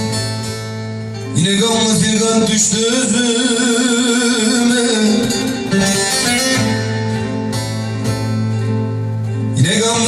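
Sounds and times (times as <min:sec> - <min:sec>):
plucked lute and guitar: 0:00.0 - 0:10.0
person singing: 0:01.3 - 0:06.9, 0:09.6 - 0:10.0.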